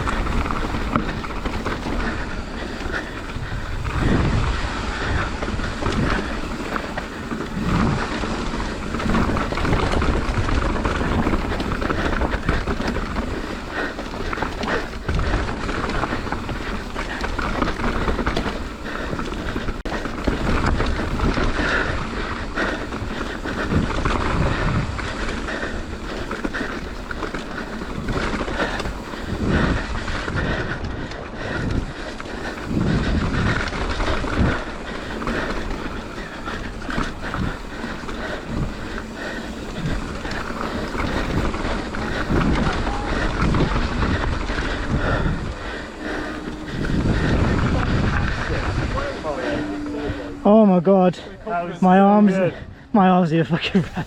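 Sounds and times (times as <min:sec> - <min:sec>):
bike rattling over bumps: 0:00.0 - 0:54.0
wind buffeting microphone: 0:00.0 - 0:54.0.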